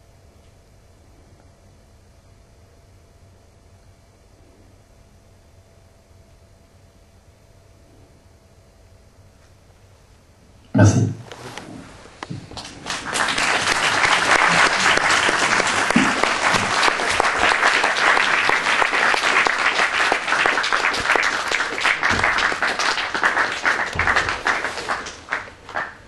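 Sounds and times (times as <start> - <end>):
audience applauding: 12.3 - 26.0.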